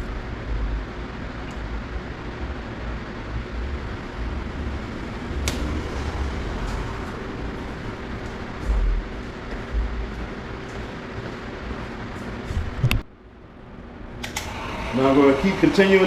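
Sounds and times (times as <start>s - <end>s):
hot-air blower whirring: 14.0s - 16.0s.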